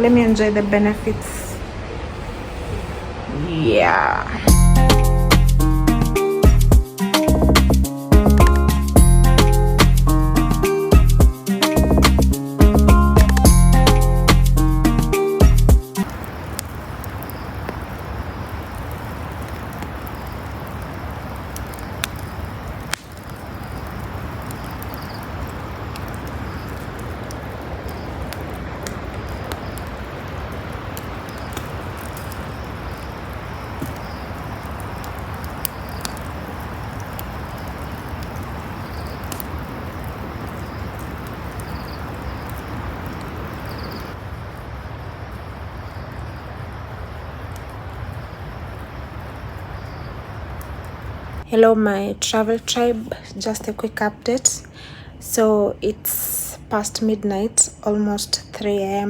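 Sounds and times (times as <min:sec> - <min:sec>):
steady rush of noise: 0:00.0 - 0:06.9, 0:16.0 - 0:45.8.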